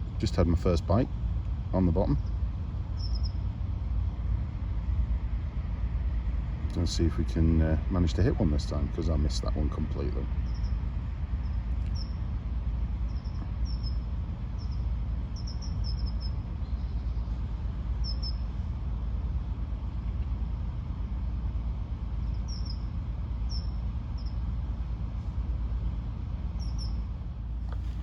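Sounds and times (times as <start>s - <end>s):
steady low rumble: 0.0s - 28.0s
small birds chirping: 1.9s - 3.5s, 10.1s - 12.2s, 12.9s - 18.6s, 22.2s - 24.4s, 26.6s - 27.0s.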